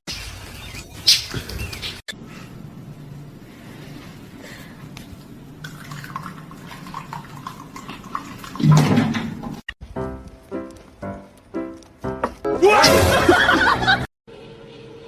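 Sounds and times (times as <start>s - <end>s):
water running and splashing: 5.6s - 9.6s.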